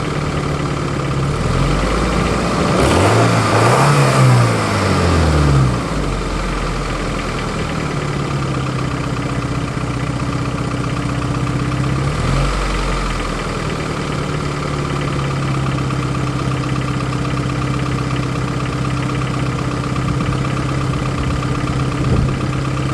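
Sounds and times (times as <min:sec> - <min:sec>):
car engine idling and revving: 0:00.0 - 0:22.9
clattering engine knock: 0:13.5 - 0:22.9.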